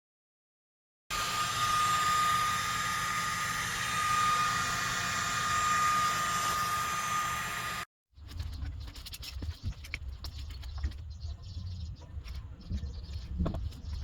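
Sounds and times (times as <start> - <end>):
machine high whine: 1.1 - 7.9.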